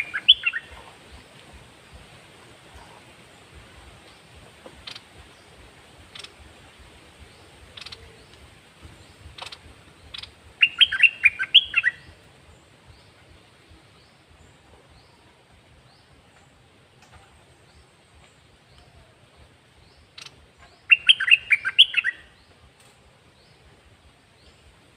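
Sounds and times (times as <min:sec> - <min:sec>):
bird chirping: 0:00.0 - 0:01.3, 0:02.8 - 0:06.4, 0:07.2 - 0:16.6, 0:17.6 - 0:22.7.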